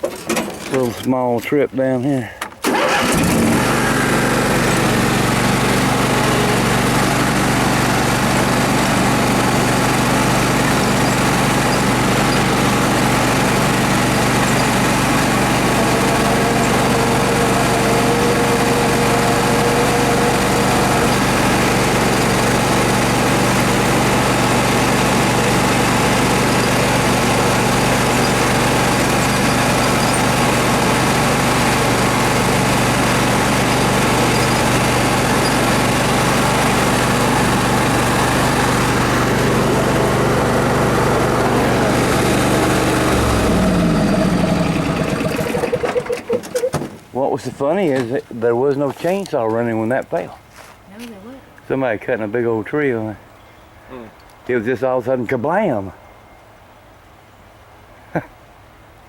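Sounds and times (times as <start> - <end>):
engine running steadily: 2.6 - 47.0.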